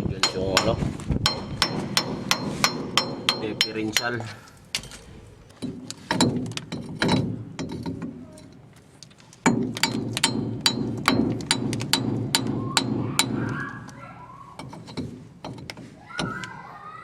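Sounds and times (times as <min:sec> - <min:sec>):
wrench clicking rhythmically: 0:00.2 - 0:04.2
metal clicks and knocks from tools: 0:14.6 - 0:15.9.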